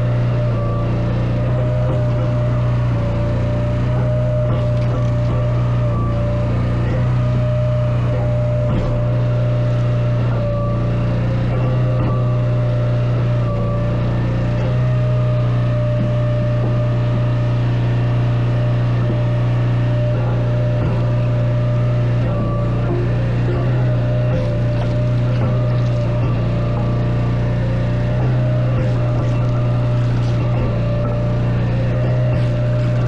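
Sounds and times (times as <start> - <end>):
engine running with deep hum: 0.0 - 33.0.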